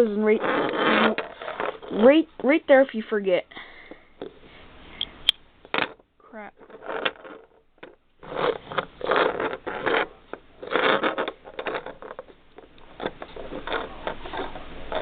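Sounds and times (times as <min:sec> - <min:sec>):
plastic pieces scraping and rustling: 0:06.6 - 0:15.0.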